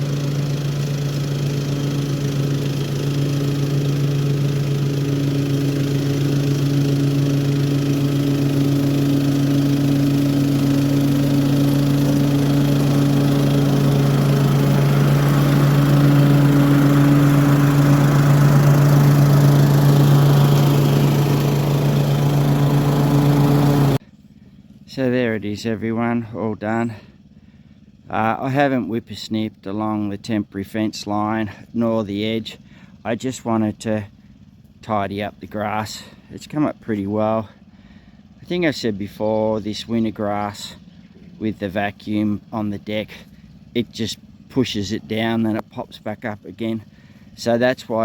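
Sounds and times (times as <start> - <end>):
lawn mower engine running: 0.0 - 48.0.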